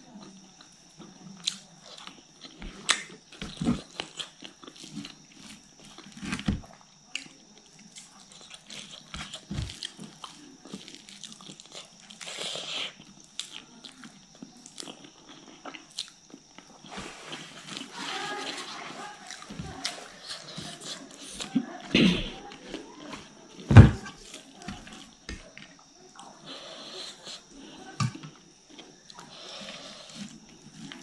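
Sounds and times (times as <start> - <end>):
wet chewing and mouth clicks: 0.2 - 16.9
soft thuds: 23.6 - 25.5.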